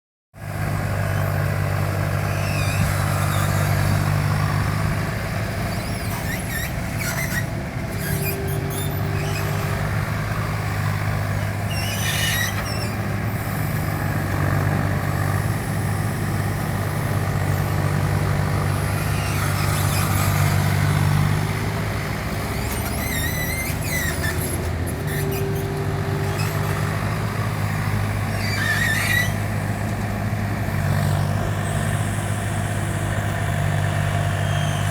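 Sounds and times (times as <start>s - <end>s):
mini excavator running: 0.4s - 34.9s
high squeals: 5.7s - 9.9s, 11.6s - 13.6s, 18.8s - 21.1s, 22.5s - 27.0s, 28.2s - 29.4s.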